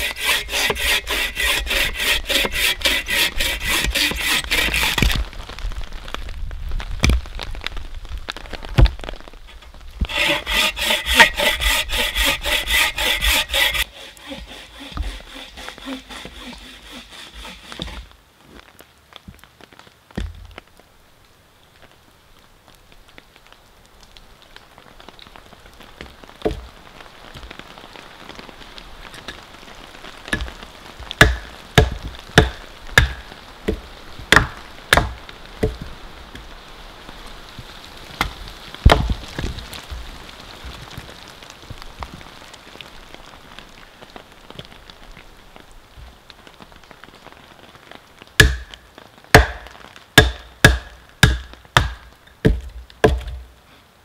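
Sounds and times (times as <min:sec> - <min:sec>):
hatchet chopping wood: 0:00.0 - 0:05.2, 0:10.1 - 0:18.0, 0:31.2 - 0:35.8, 0:38.9 - 0:39.1, 0:48.4 - 0:48.7, 0:49.4 - 0:53.4
steady rain: 0:00.0 - 0:54.0.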